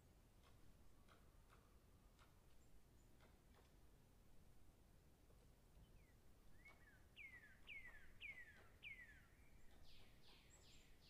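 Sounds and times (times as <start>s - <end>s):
faint bird chirping: 5.8s - 11.0s.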